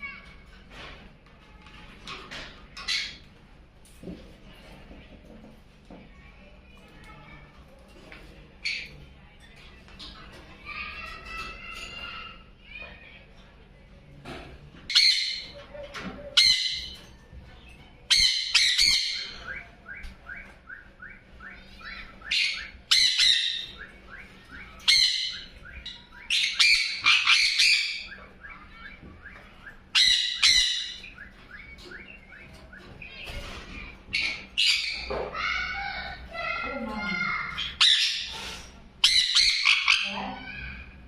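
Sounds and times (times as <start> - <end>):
parrots squawking: 14.9 - 17.1, 18.1 - 41.0.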